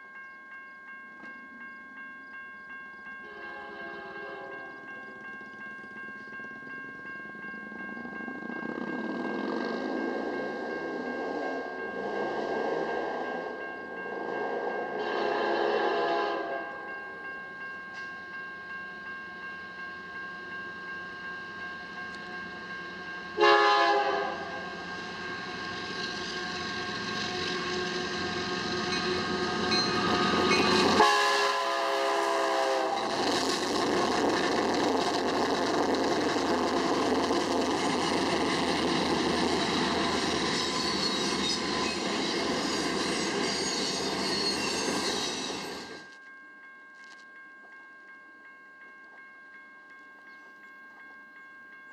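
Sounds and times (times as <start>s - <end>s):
crossing bell ringing: 0.0s - 51.9s
locomotive air horn blasts: 3.3s - 4.6s, 14.4s - 16.7s, 23.4s - 24.6s, 30.9s - 33.2s.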